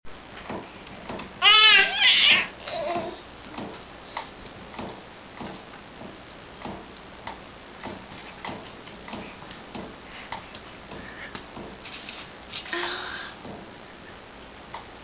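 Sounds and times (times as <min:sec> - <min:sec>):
baby cooing: 0:01.4 - 0:03.2.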